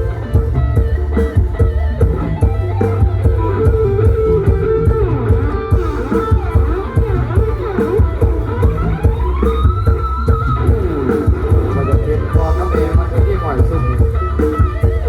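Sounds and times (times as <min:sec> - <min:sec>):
bass guitar: 0:00.0 - 0:15.0
drums: 0:00.0 - 0:15.0
electric guitar lead: 0:00.0 - 0:15.0.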